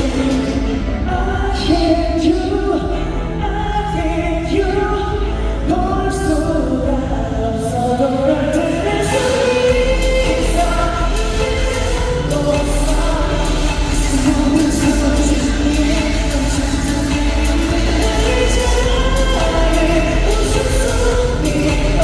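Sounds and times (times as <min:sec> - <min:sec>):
amplified backing track with bass: 0:00.0 - 0:22.0
man singing: 0:00.0 - 0:22.0.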